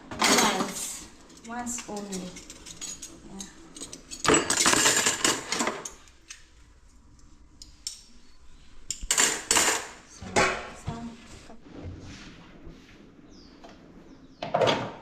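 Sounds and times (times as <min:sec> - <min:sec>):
dishes and cutlery clattering: 0:00.1 - 0:06.4, 0:08.9 - 0:10.6.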